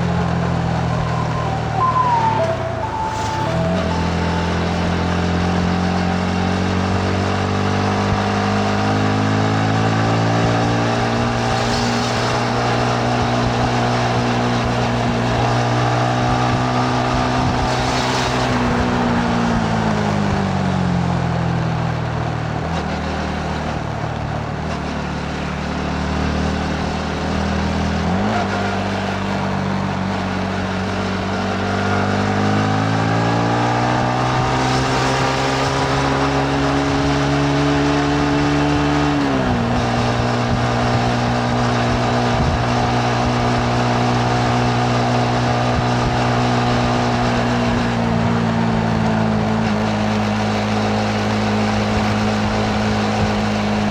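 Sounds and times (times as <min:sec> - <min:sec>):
motorcycle engine revving: 0:24.8 - 0:53.9.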